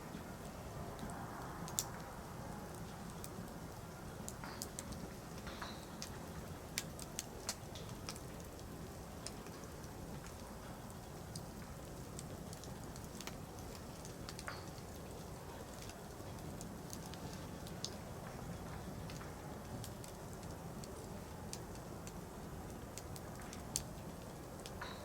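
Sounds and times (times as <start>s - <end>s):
low rush of flames: 0.0s - 24.8s
fire crackling and popping: 0.1s - 25.0s.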